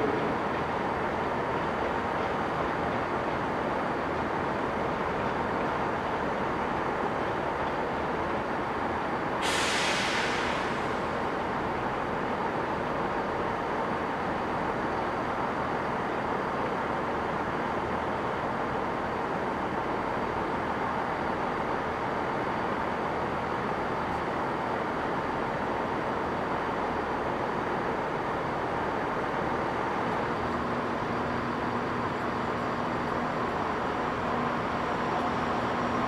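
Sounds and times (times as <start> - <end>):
diesel trains rumbling: 0.0 - 36.0
compressed air hiss: 9.4 - 11.0.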